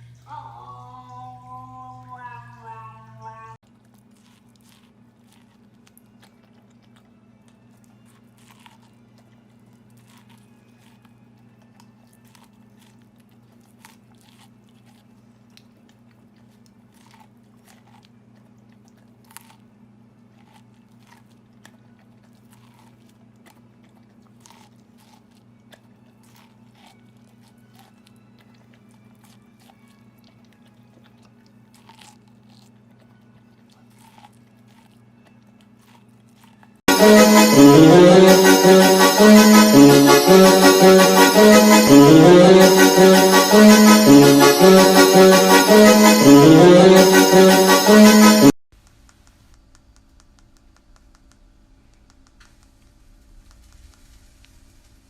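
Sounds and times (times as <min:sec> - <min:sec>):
crunchy chewing: 0:03.6 - 0:36.9.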